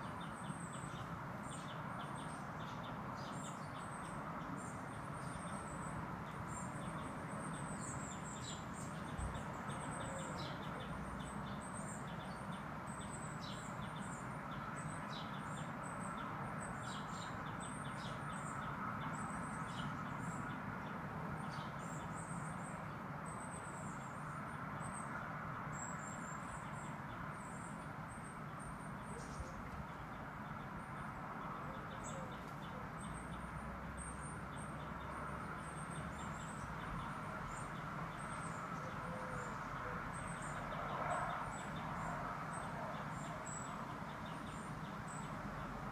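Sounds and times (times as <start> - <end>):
small birds chirping: 25.8 - 45.9.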